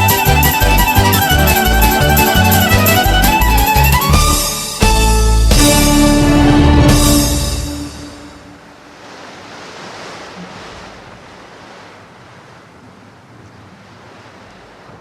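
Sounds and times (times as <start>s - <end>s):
music: 0.0s - 8.4s
wind rustling: 0.0s - 15.0s.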